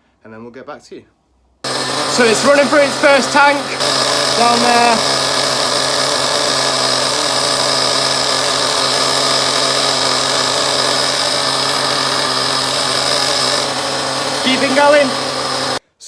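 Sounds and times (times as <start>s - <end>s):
nitro engine idling: 1.7s - 15.8s.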